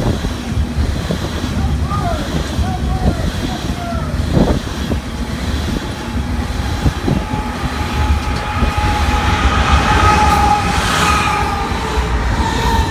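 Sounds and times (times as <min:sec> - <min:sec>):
train wheels rumbling on rail: 0:00.0 - 0:12.9
wheel clacks: 0:00.0 - 0:12.9
high wheel squeal: 0:03.8 - 0:12.9.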